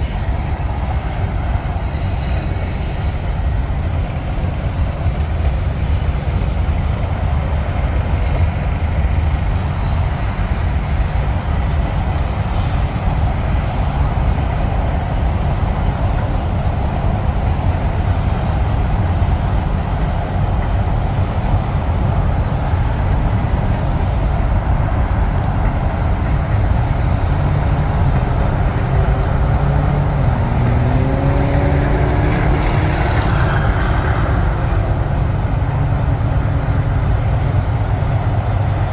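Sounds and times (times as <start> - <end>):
freight train rumbling over bridge: 0.0 - 38.9
highway traffic: 0.0 - 38.9
engine tone rising in pitch: 27.5 - 37.8.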